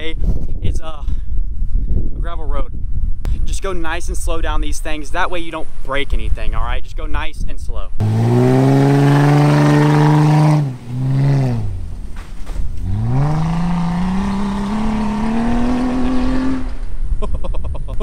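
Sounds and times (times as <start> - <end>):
car engine revving: 8.0 - 17.0.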